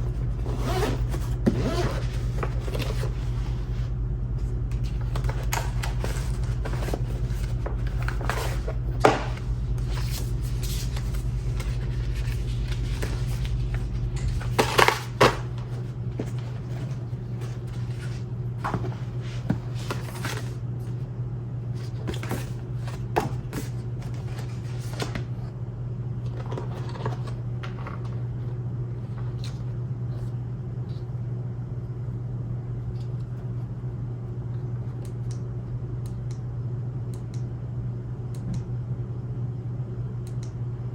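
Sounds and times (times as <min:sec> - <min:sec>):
deep rumble: 0:00.0 - 0:29.4
steady low hum: 0:00.0 - 0:40.9
packaging rustling and clicking: 0:04.8 - 0:20.6.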